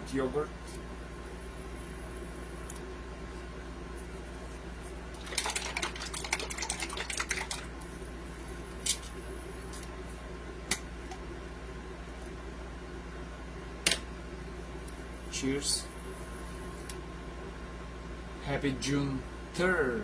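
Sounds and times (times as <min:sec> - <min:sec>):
steady low hum: 0:00.0 - 0:20.0
plastic cup crinkling: 0:05.1 - 0:07.7.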